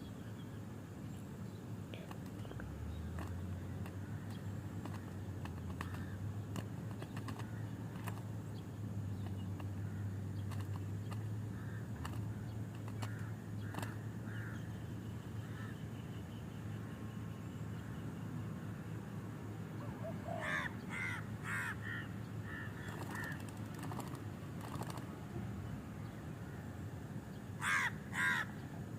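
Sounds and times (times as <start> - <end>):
steady low hum: 0.0 - 28.9
sharp clicks: 2.0 - 8.3, 10.4 - 11.3, 12.0 - 14.0, 22.8 - 25.1
bird harsh crow-like calls: 3.2 - 6.3, 6.9 - 8.2, 9.6 - 10.7, 11.4 - 14.7, 15.4 - 15.8, 19.8 - 25.0, 27.5 - 28.8.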